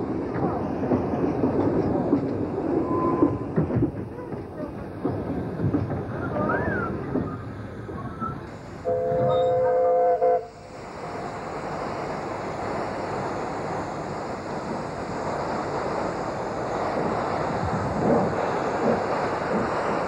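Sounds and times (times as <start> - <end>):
steady rushing noise: 0.0 - 20.0
steam locomotive whistle: 8.8 - 10.6.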